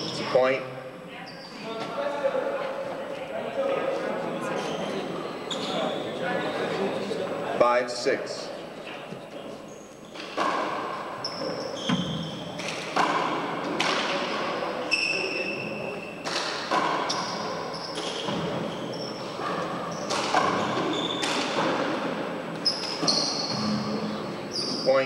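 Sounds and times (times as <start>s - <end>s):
shoe squeaks on court floor: 1.2s - 1.9s, 4.5s - 6.2s, 9.6s - 10.6s, 11.2s - 12.8s, 14.8s - 21.6s, 22.6s - 25.0s.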